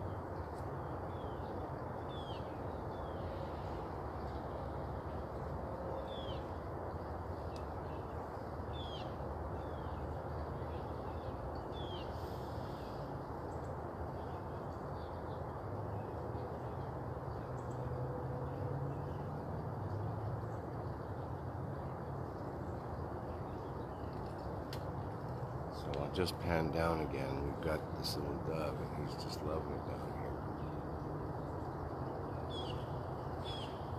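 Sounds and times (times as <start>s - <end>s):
bird chirps: 32.3s - 33.9s.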